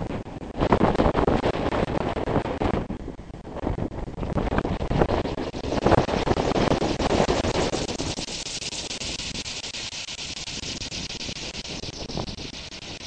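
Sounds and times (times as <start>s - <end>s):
wind buffeting microphone: 0.0s - 13.0s
steady high hiss: 3.0s - 13.0s.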